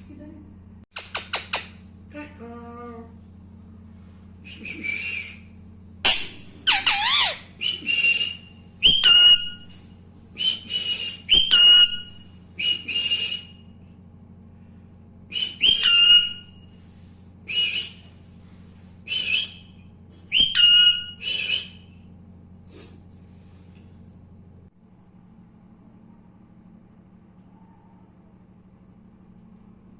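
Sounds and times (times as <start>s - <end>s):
steady low hum: 0.0s - 29.9s
parakeet shrill whistled calls: 6.1s - 7.5s, 8.8s - 9.7s, 11.3s - 12.2s, 15.4s - 16.5s, 20.3s - 21.6s.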